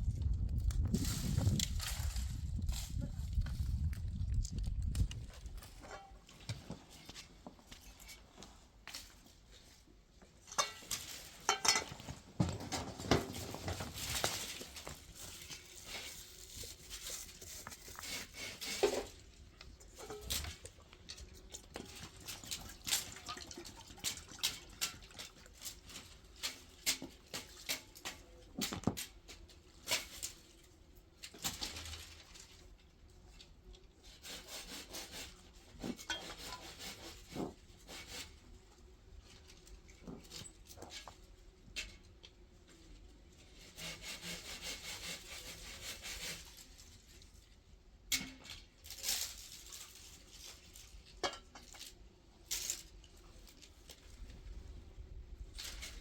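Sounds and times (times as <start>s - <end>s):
handsaw cutting wood: 43.6s - 46.5s.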